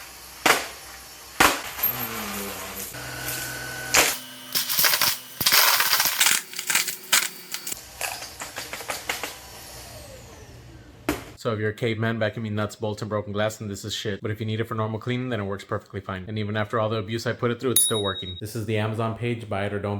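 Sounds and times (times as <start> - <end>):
vacuum motor humming: 2.9 - 7.8
debris clattering through vacuum nozzle: 4.1 - 7.8.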